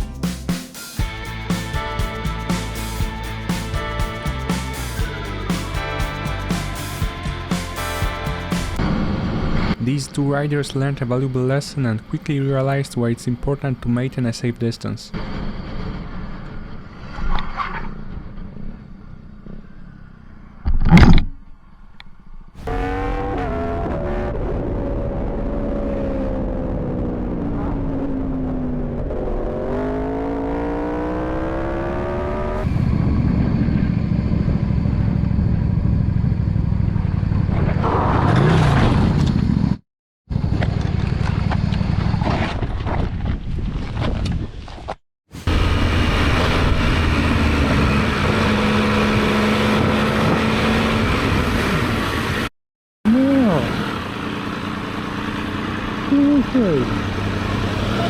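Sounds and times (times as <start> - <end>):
motorcycle engine: 0.0 - 9.7, 22.6 - 39.7, 45.4 - 52.5
wind noise: 32.5 - 52.5.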